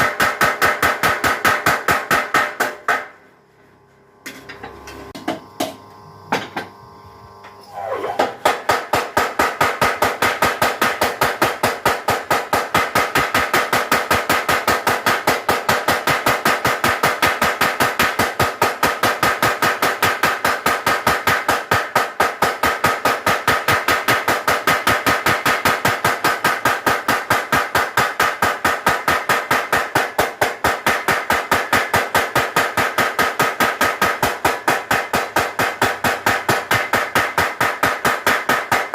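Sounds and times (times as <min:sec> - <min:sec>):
power hammer striking metal: 0:00.0 - 0:03.2, 0:07.7 - 0:38.9.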